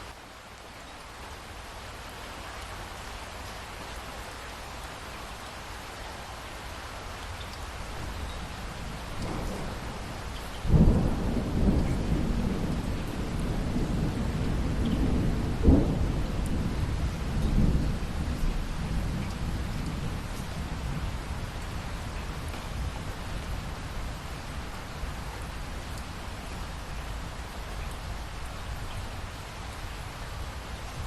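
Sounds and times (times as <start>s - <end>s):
steady rain: 0.0s - 31.0s
thunder rumbling and cracking: 8.9s - 24.0s.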